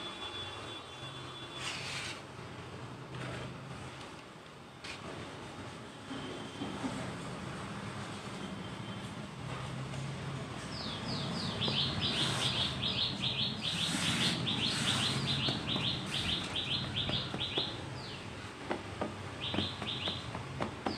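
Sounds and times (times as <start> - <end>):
bird chirping: 10.8 - 18.2, 19.4 - 20.2.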